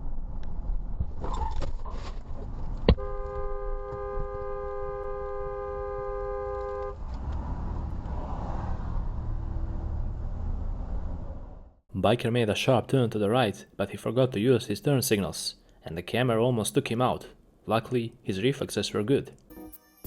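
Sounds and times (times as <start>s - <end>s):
low road rumble: 0.0s - 11.9s
car horn blast: 3.0s - 7.0s.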